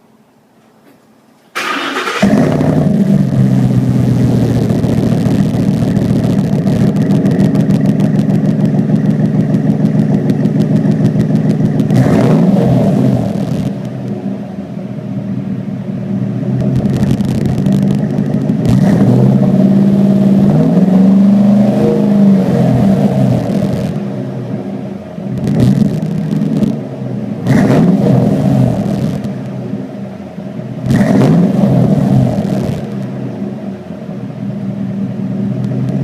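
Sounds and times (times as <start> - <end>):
truck engine idling and revving: 1.6 - 36.0.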